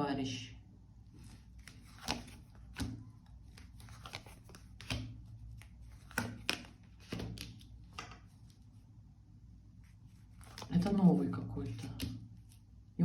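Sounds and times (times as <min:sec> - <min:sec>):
cards slapping and rustling: 0:01.2 - 0:08.7, 0:09.8 - 0:11.0, 0:11.6 - 0:12.7.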